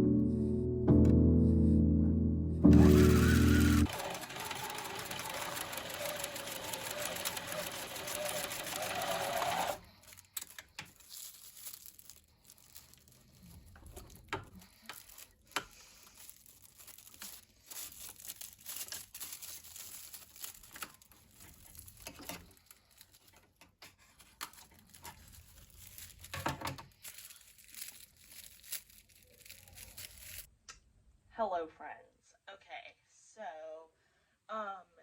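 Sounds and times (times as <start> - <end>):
sewing machine running: 2.7 - 10.1
fabric rustling: 2.9 - 30.5.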